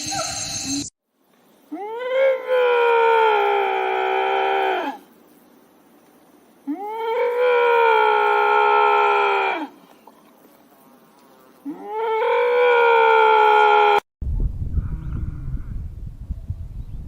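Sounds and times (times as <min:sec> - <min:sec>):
long animal calls: 0:01.7 - 0:05.1
low rumbling noise: 0:14.2 - 0:17.0.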